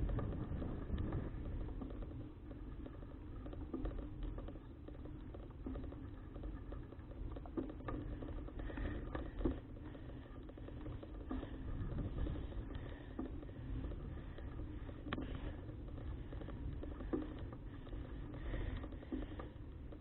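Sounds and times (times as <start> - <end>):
wind on microphone: 0.0 - 2.0, 11.6 - 14.6.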